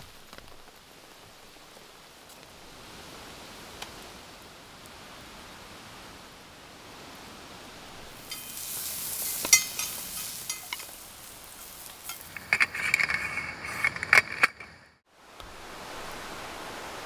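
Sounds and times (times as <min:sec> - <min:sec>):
food sizzling in a pan: 0:08.0 - 0:13.9
metal cookware clinking and scraping: 0:08.1 - 0:14.9.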